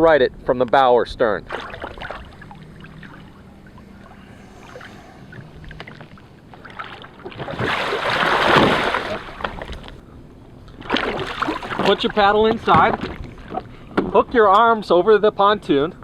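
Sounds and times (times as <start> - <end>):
water sloshing with small splashes: 1.4 - 10.0, 10.6 - 14.2
kayak flipped with loud splash: 6.8 - 9.7.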